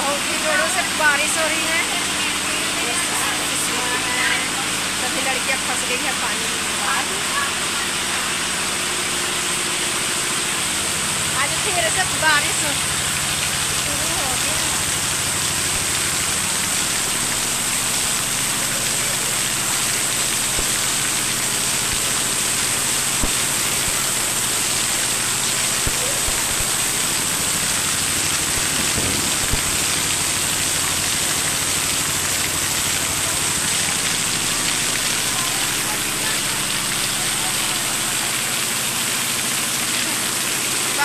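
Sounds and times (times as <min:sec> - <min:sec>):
heavy rain pouring: 0:00.0 - 0:41.0.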